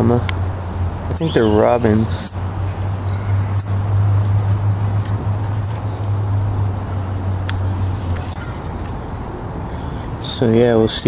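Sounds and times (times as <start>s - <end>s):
steady low rumble: 0.0s - 11.0s
robin alarm calls: 0.5s - 4.2s, 5.5s - 8.9s.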